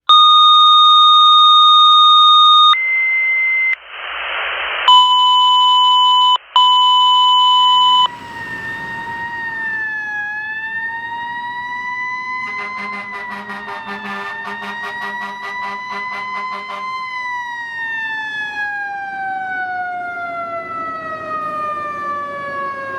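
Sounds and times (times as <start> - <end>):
steady electronic tones: 2.4 - 9.4, 12.4 - 17.2
road noise: 6.5 - 22.9
fire engine siren wailing: 7.4 - 22.9.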